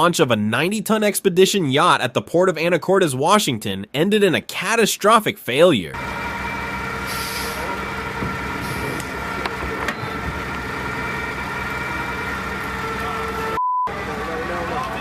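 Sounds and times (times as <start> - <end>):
heavy engine idling: 6.0 - 15.0.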